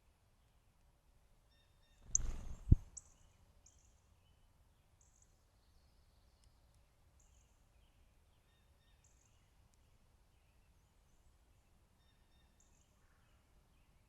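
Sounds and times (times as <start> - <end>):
distant bird calls: 1.5 - 3.8
microphone hiss and rumble: 2.1 - 3.0.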